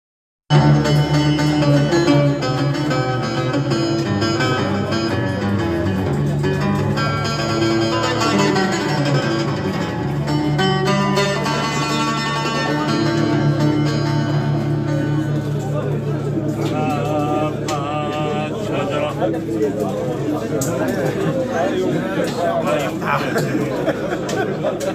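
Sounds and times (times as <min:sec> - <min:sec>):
steady low bass line: 0:00.5 - 0:20.6
plucked string instruments: 0:00.5 - 0:24.9.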